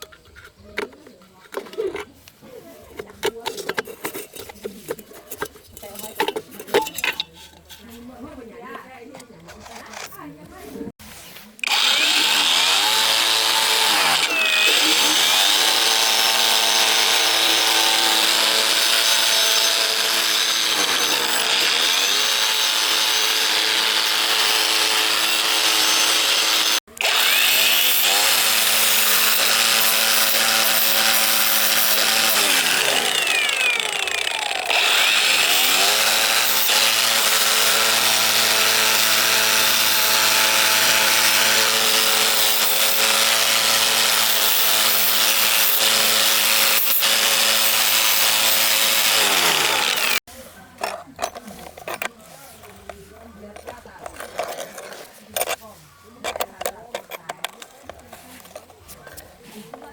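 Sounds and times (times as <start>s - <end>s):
electric power tool running: 11.6s - 50.3s.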